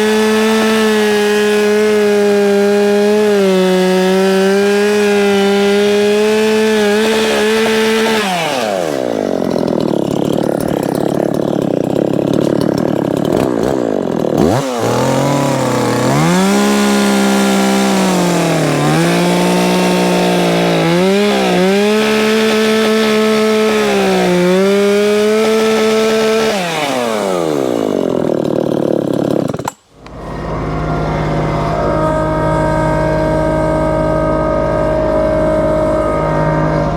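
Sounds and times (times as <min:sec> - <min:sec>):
chainsaw cutting log: 0:00.0 - 0:36.9
steady engine hum: 0:29.9 - 0:36.9.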